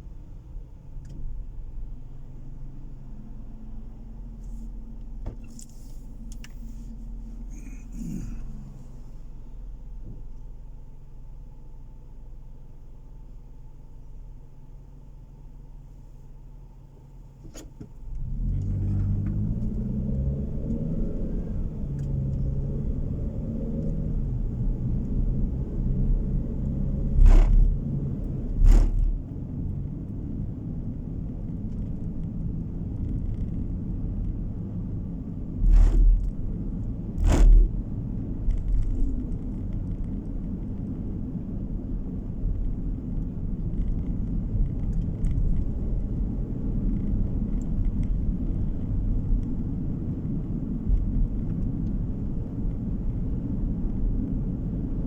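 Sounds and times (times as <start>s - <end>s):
road and tyre rumble: 0.0s - 55.0s
car engine accelerating: 18.0s - 32.0s
wheels thumping over bumps: 27.0s - 29.2s, 37.1s - 39.2s.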